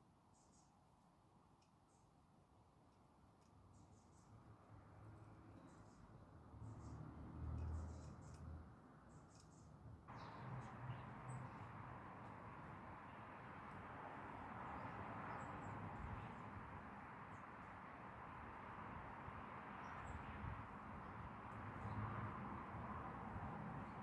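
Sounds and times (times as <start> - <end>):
faint bird chirps: 0.3 - 0.8.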